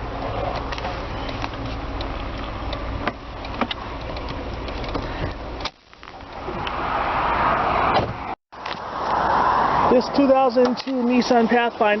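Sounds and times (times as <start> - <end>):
car engine idling: 0.0 - 6.6.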